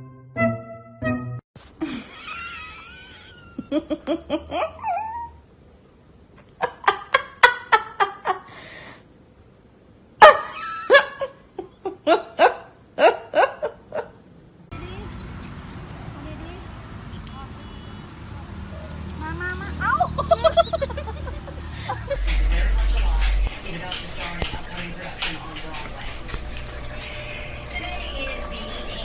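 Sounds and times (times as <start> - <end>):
person laughing: 1.8 - 5.3, 20.1 - 23.4.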